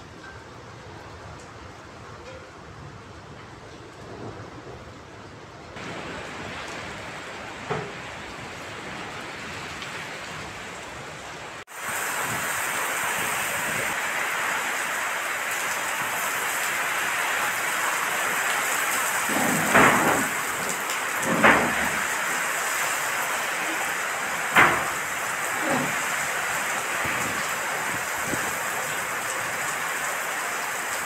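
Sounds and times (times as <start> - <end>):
heavy rain in strong wind: 0.0 - 31.0.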